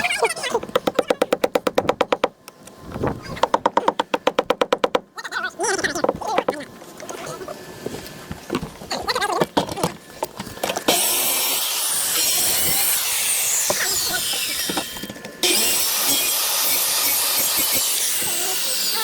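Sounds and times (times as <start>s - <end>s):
power tool cutting fiberglass: 10.9s - 19.0s.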